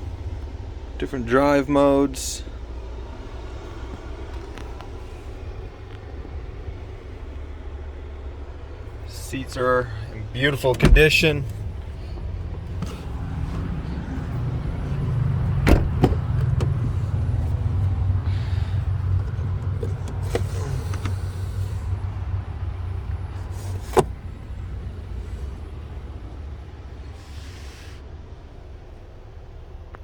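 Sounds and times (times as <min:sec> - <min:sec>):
car engine idling: 0:00.0 - 0:30.0
sharp clicks and knocks: 0:15.5 - 0:17.6.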